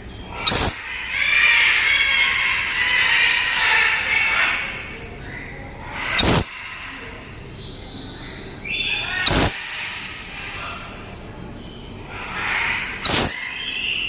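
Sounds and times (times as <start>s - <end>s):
lory calling harshly: 0.2s - 5.0s, 5.8s - 7.3s, 8.6s - 11.1s, 12.0s - 14.0s.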